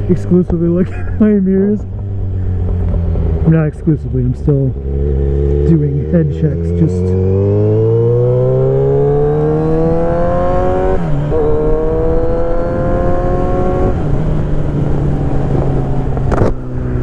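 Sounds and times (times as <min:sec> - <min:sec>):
motorcycle engine accelerating: 0:00.0 - 0:17.0
wind noise: 0:06.6 - 0:17.0.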